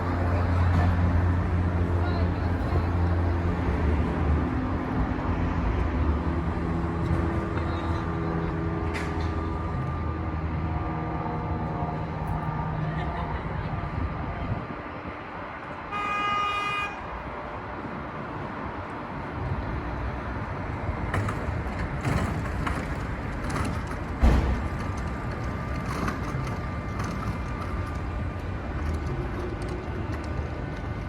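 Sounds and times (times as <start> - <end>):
outdoor background noise: 0.0 - 31.0
vehicle horn honk: 15.9 - 17.1
sharp thump: 24.2 - 24.8.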